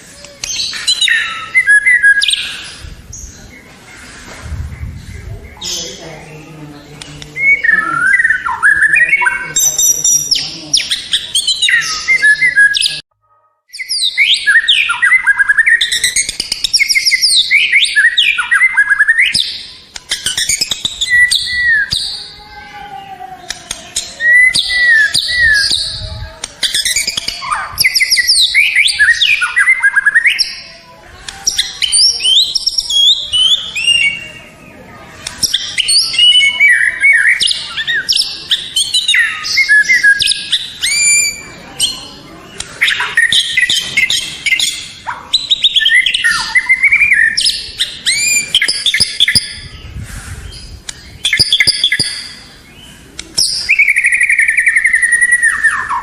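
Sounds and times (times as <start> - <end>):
songbird singing whistles: 0.2 - 3.3, 7.4 - 13.0, 13.7 - 22.3, 24.1 - 26.0, 35.4 - 41.6, 53.2 - 56.0.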